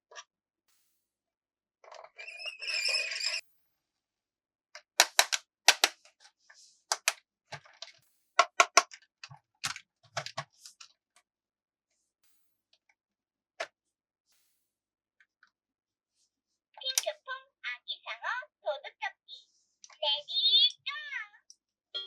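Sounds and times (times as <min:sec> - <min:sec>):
plastic toy parts clicking: 0:04.8 - 0:06.1, 0:06.9 - 0:10.9.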